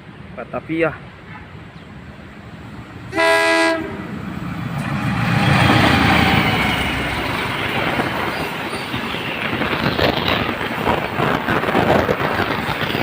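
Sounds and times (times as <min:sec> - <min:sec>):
train rumble and wheel clatter: 0:00.0 - 0:13.0
train horn blast: 0:03.1 - 0:04.1.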